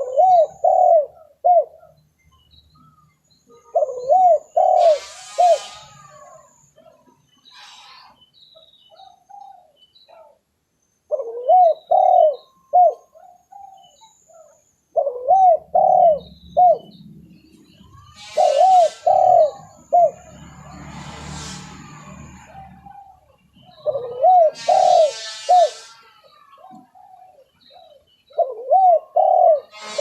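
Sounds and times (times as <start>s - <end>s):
dove cooing: 0.0s - 1.9s, 3.6s - 7.0s, 11.1s - 17.0s, 18.1s - 20.4s, 22.4s - 30.0s
faint high bird chirps: 0.0s - 20.9s.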